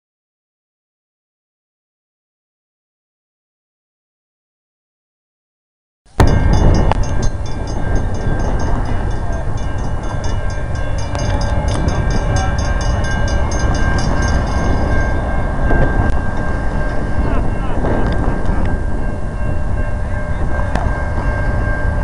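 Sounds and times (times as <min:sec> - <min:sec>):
diesel locomotive rumbling: 0:06.1 - 0:22.0
steady high tone: 0:06.2 - 0:22.0.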